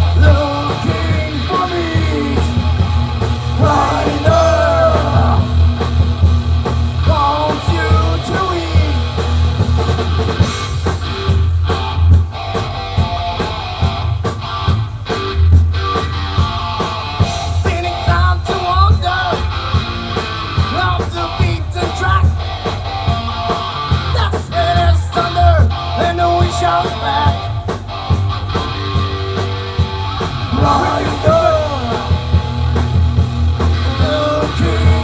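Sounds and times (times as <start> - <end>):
bass guitar: 0.0 - 35.0
distorted electric guitar: 0.0 - 35.0
drums: 0.0 - 35.0
person shouting vocals: 3.6 - 5.6, 24.2 - 24.7.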